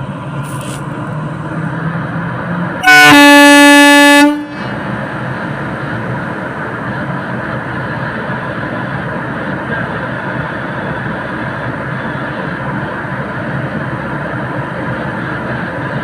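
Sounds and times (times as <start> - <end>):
train rumble: 0.0 - 16.0
locomotive horn blast: 2.8 - 4.8.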